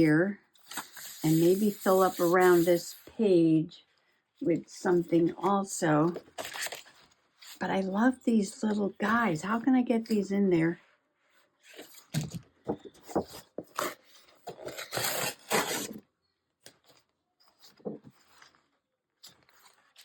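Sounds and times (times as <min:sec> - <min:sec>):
paper rustling and scraping: 0:00.6 - 0:03.1, 0:06.1 - 0:07.6, 0:11.2 - 0:16.0, 0:16.7 - 0:20.0.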